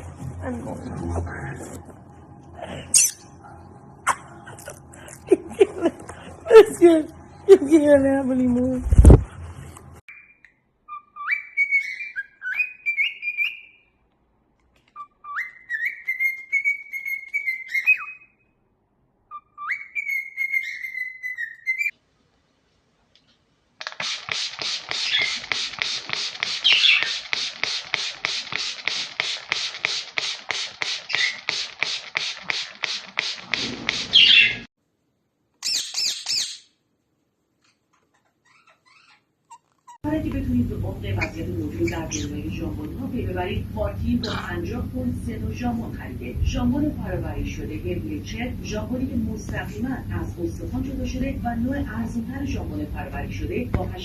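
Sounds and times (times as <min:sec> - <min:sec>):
parrot chirping rapidly: 0:10.1 - 0:13.9, 0:15.0 - 0:18.5, 0:19.3 - 0:22.0, 0:23.8 - 0:31.9, 0:33.4 - 0:34.7, 0:35.6 - 0:36.8, 0:38.3 - 0:40.0
parrot whistling: 0:19.3 - 0:21.9.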